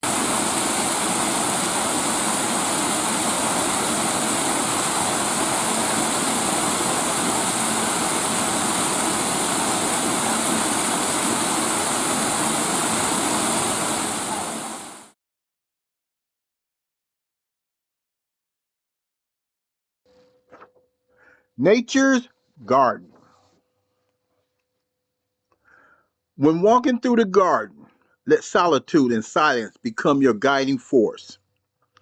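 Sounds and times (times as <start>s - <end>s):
waterfall rushing: 0.0s - 15.1s.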